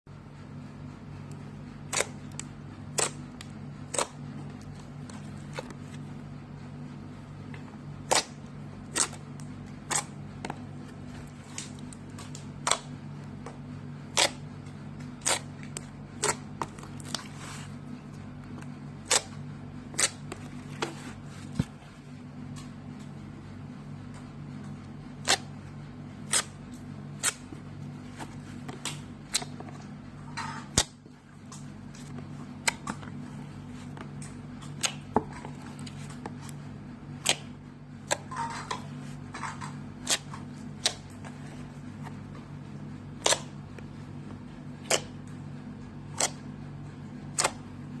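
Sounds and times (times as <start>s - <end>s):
steady low hum: 0.1s - 48.0s
slime squelching: 1.8s - 6.1s, 14.1s - 22.1s.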